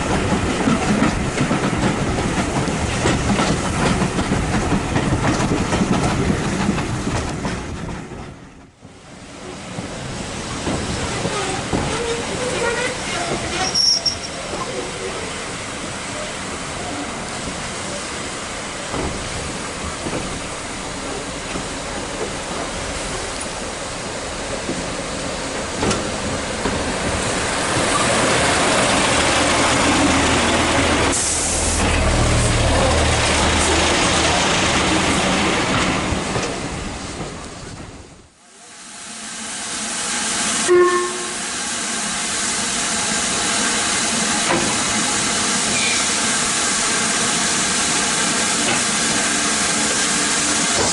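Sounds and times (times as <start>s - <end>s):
steam train rushing: 0.0s - 50.9s
steam hiss: 9.6s - 32.5s, 38.5s - 50.9s.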